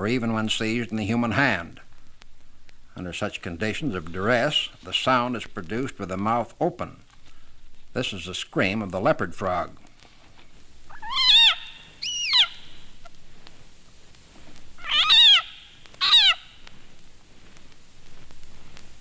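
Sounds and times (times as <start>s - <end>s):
frog screaming: 10.9s - 12.8s, 14.8s - 16.6s.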